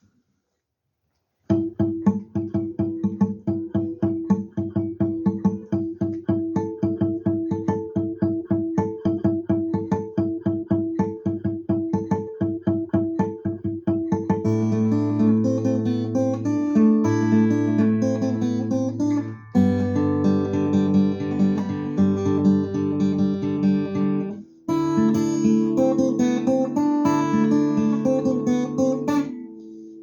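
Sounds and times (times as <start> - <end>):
ringing guitar strums: 1.5 - 30.0
guitar damped strokes: 24.2 - 30.0.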